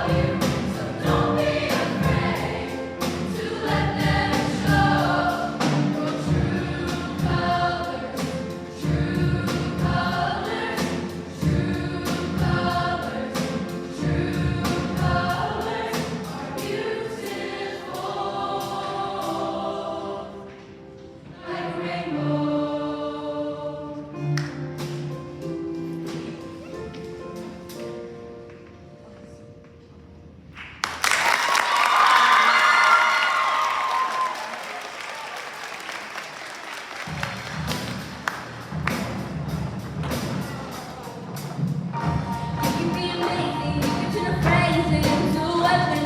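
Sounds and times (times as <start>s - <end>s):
choir singing: 0.0s - 24.3s.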